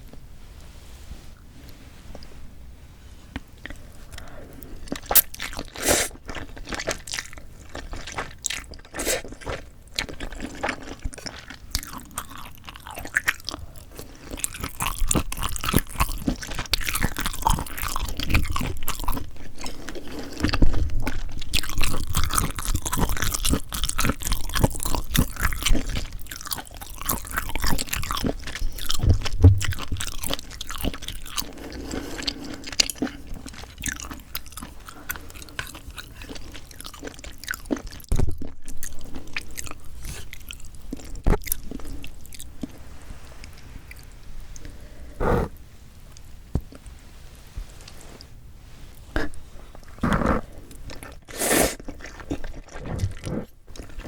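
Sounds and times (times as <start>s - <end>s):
person chewing crunchy food: 3.4s - 45.6s, 48.9s - 54.0s.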